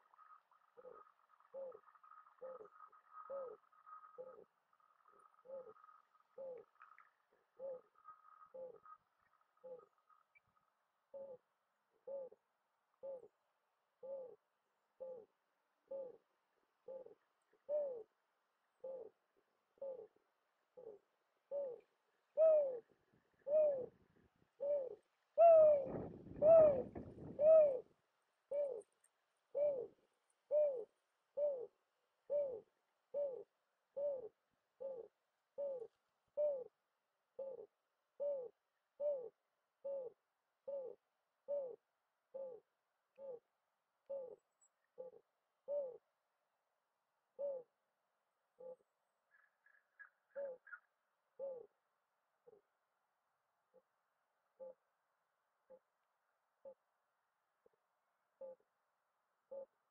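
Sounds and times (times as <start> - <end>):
bird hooting: 0.0 - 6.7, 7.5 - 10.3, 11.1 - 12.4, 13.0 - 13.3, 14.0 - 14.4, 15.0 - 15.3, 15.9 - 16.2, 16.8 - 18.1, 18.8 - 19.2, 19.8 - 20.2, 20.8 - 24.0, 24.6 - 27.9, 28.5 - 28.9, 29.5 - 31.7, 32.3 - 36.8, 37.4 - 43.5, 44.1 - 44.4, 45.0 - 46.0, 47.4 - 47.7, 48.6 - 48.8, 49.4 - 51.8, 54.6 - 54.8, 58.4 - 58.6, 59.5 - 59.8.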